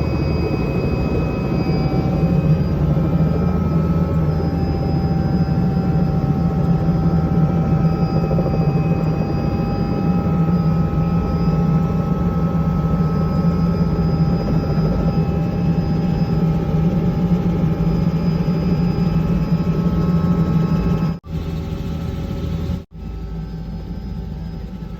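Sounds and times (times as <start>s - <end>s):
helicopter rotor and engine: 0.0s - 24.9s.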